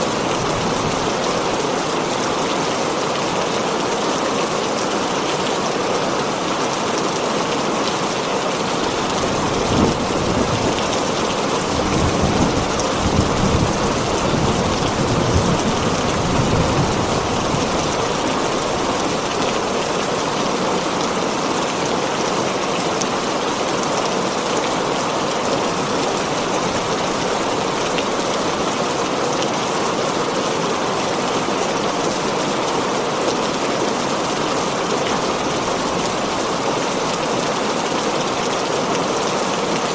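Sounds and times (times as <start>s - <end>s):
heavy rain on a tin roof: 0.0s - 39.9s
thunder rumbling: 8.8s - 17.6s.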